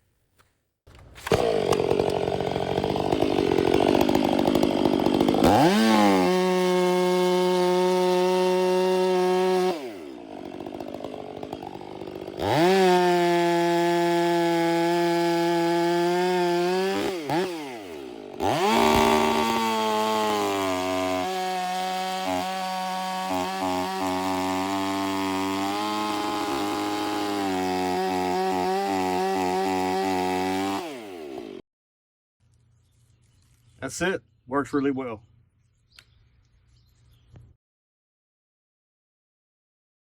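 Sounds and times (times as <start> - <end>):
two-stroke chainsaw revving: 1.2 - 31.6.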